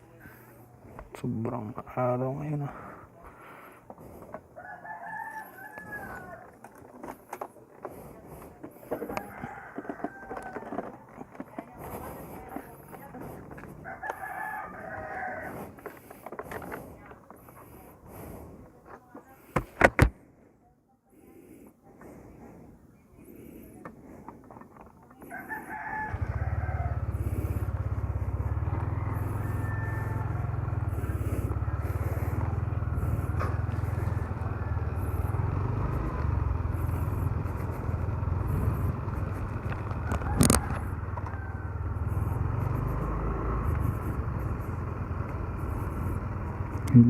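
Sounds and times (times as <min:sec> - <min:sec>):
motor scooter engine running: 0:05.9 - 0:18.6, 0:25.2 - 0:47.0.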